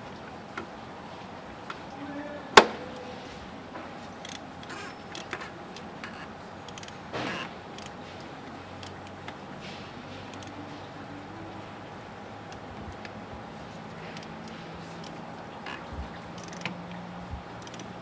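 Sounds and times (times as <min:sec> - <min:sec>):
faint steady hum: 0:00.0 - 0:18.0
light tool clicks: 0:04.2 - 0:09.4, 0:10.1 - 0:10.6, 0:13.9 - 0:15.2, 0:16.3 - 0:16.8, 0:17.6 - 0:18.0.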